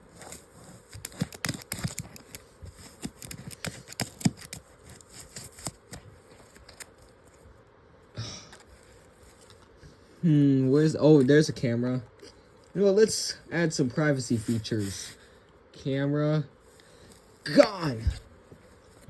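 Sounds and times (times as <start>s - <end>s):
paper rustling: 0.0s - 7.5s, 14.1s - 15.3s.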